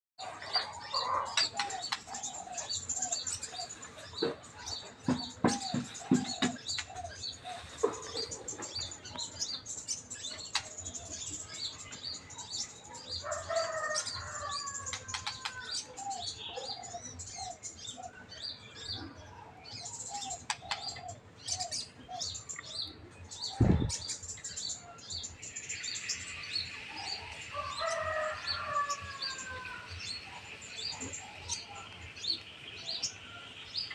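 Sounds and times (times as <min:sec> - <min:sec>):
birds whistling: 0:00.2 - 0:33.9
wild birds chirping: 0:00.2 - 0:33.9
sudden thump: 0:23.6 - 0:24.0.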